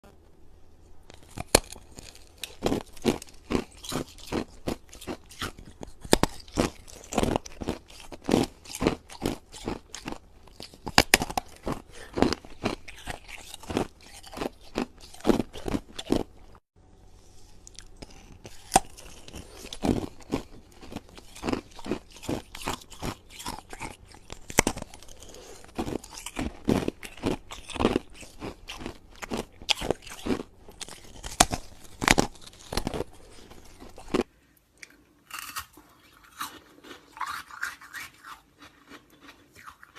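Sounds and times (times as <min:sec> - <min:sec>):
ice being chewed: 0:01.1 - 0:16.6, 0:17.6 - 0:39.9.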